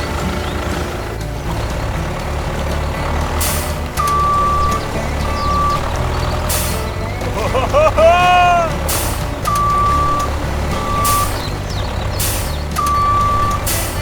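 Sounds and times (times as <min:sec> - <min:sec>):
heavy vehicle engine rumbling: 0:00.0 - 0:14.0
air-brake hisses: 0:03.2 - 0:14.0
reversing beeps: 0:04.0 - 0:06.9, 0:09.5 - 0:11.6, 0:12.4 - 0:14.0.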